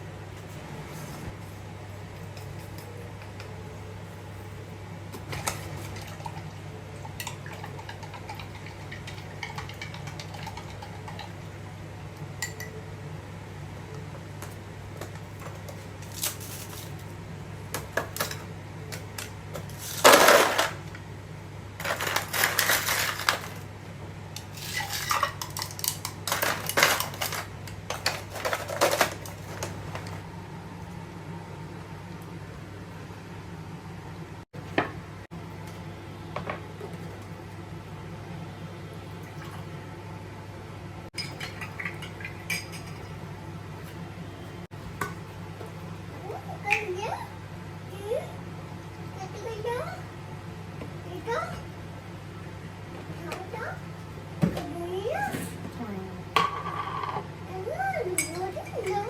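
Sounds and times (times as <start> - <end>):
dishes and cutlery clattering: 7.2 - 11.4.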